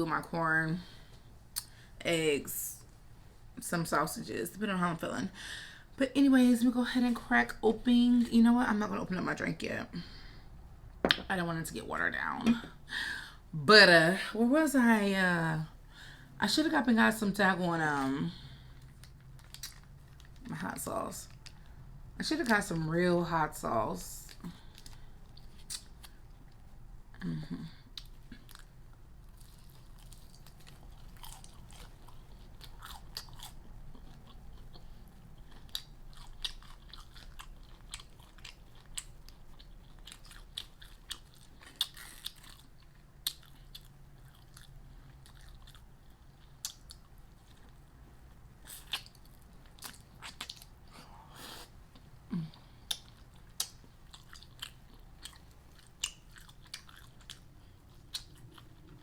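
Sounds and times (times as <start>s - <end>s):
soft chewing: 18.3s - 20.5s, 24.2s - 59.0s
crunching fried food: 28.0s - 47.8s, 52.9s - 59.0s.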